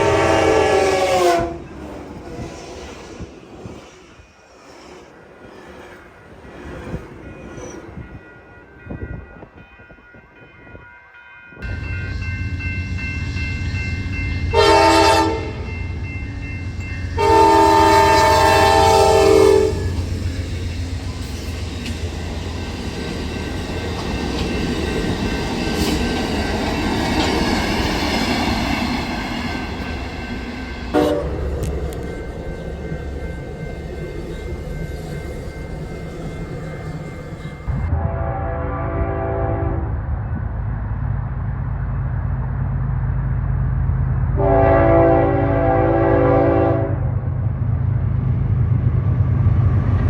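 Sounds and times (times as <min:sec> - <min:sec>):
train horn blasts: 0:00.0 - 0:01.7, 0:14.4 - 0:15.8, 0:17.1 - 0:20.1, 0:30.9 - 0:32.1, 0:37.7 - 0:40.0, 0:44.4 - 0:47.2
train rumbling past: 0:00.0 - 0:50.0
wheels rolling on rails: 0:19.8 - 0:37.9.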